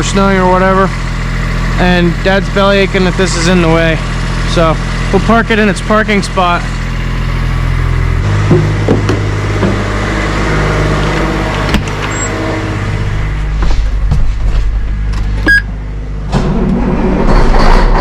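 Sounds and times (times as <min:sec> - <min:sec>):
farm machine engine running: 0:00.0 - 0:18.0
knocks: 0:08.4 - 0:09.8
brief high tone: 0:12.1 - 0:12.4.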